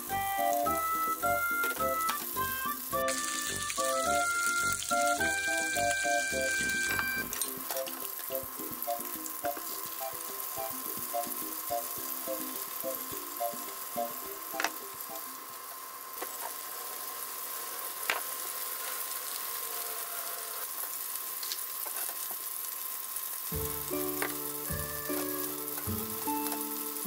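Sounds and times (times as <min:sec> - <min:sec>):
background music with bass line: 0:00.0 - 0:14.7, 0:23.6 - 0:26.5
chicken sizzling in a frying pan: 0:00.0 - 0:27.0.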